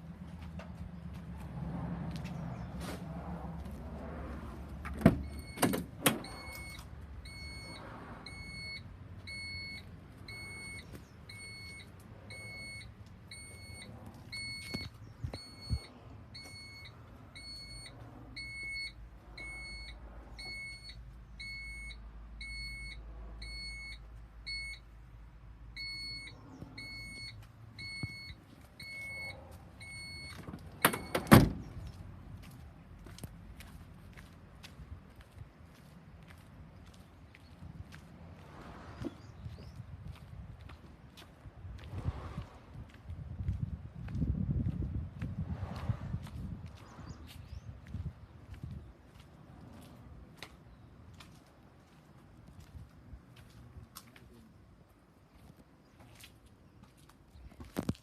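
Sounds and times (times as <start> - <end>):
truck warning beeper: 5.0 - 24.9, 25.7 - 31.6.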